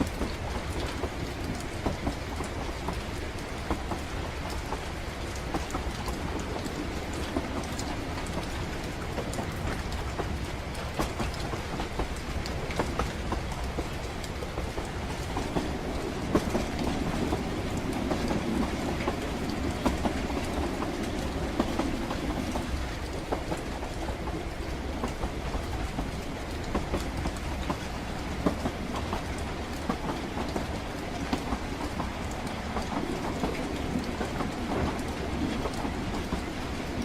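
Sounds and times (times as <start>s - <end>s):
train rumbling on rails: 0.0s - 37.0s.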